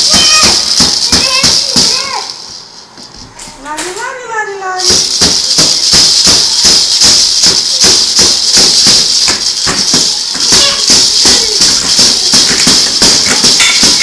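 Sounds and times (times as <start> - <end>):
loud rhythmic rattling: 0.0 - 3.2, 4.8 - 14.0
person speaking: 10.1 - 14.0.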